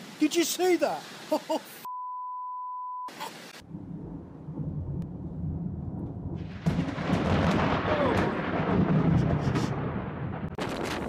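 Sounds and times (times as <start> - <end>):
censor bleep: 1.9 - 3.1
low rumble: 3.6 - 10.6.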